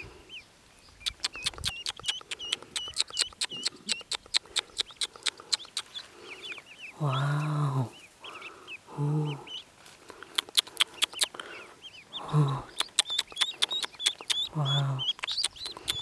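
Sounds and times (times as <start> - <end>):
ducklings peeping: 0.0 - 16.0
sharp clicks: 1.0 - 6.0, 10.1 - 11.4, 12.7 - 16.0
person humming low: 7.0 - 8.0, 8.9 - 9.5, 12.2 - 12.7, 14.5 - 15.1.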